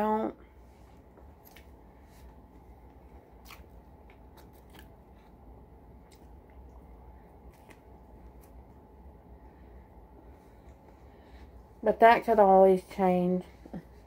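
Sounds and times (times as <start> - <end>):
faint low hum: 0.0 - 14.0
person chewing crunchy food: 1.2 - 8.8.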